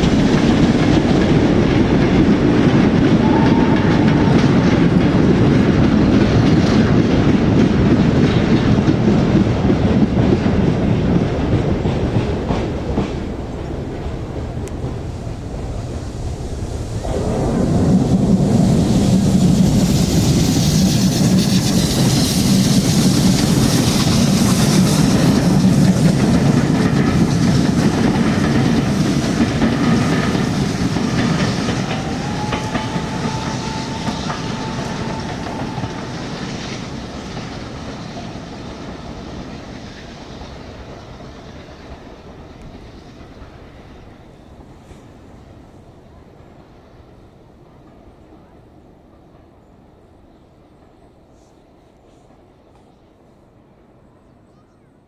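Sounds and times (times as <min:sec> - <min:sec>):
steam hissing: 0:00.0 - 0:44.1
steam train rumbling past: 0:00.0 - 0:54.7.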